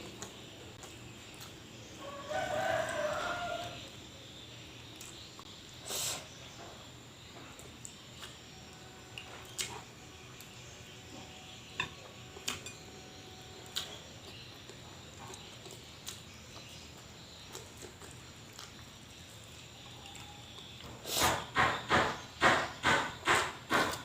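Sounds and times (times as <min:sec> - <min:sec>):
person chewing: 0:09.2 - 0:10.6, 0:13.6 - 0:20.9.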